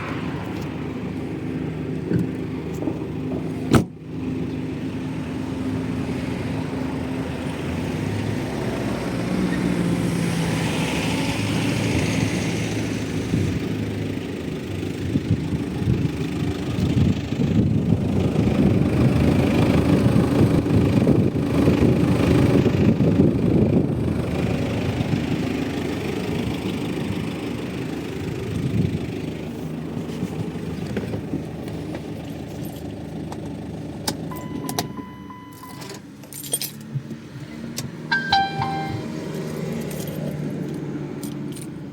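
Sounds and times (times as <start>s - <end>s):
diesel engine running: 0.0s - 36.4s, 37.6s - 41.9s
short tones: 34.3s - 36.0s, 38.1s - 39.2s
keys jingling: 35.5s - 36.9s, 38.1s - 41.8s.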